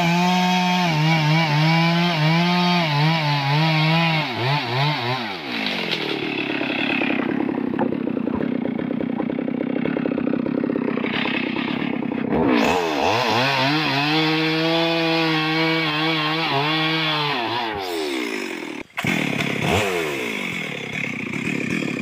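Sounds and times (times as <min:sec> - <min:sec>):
chainsaw engine revving: 0:00.0 - 0:22.0.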